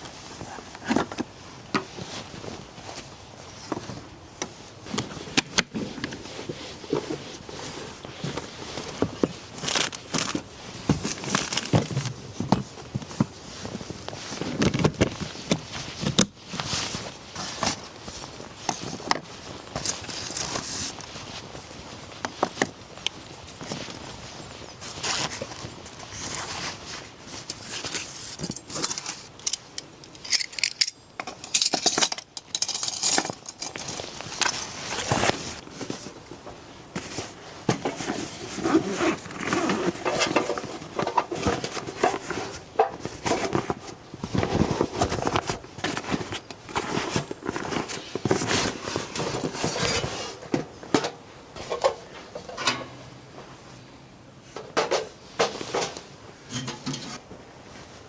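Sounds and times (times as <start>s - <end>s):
objects clinking and knocking: 27.5s - 34.8s.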